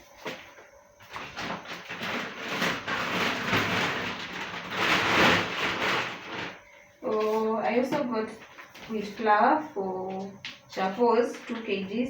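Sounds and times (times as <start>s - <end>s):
packaging rustling and crinkling: 1.0s - 9.3s.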